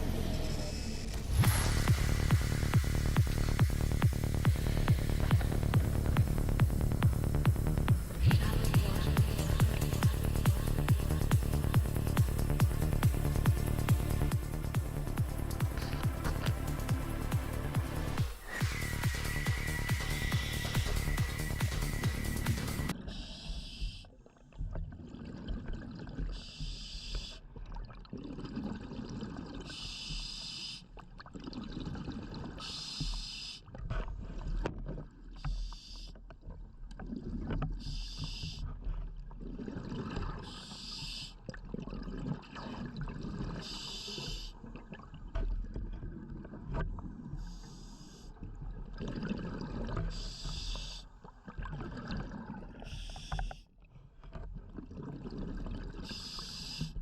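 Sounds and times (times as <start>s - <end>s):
regulator air hiss: 0.0s - 6.0s, 14.2s - 23.5s
bubbling of exhaled air: 0.0s - 57.0s.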